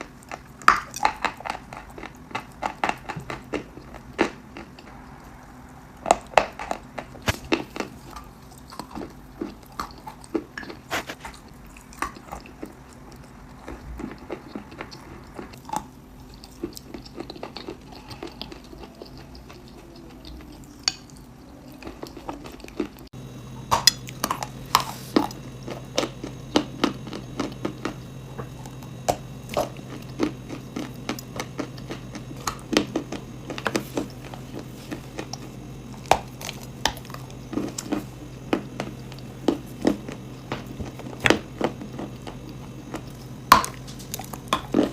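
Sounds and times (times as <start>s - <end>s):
crunchy chewing: 0.0s - 44.9s
low hum: 4.7s - 8.9s, 23.2s - 44.9s.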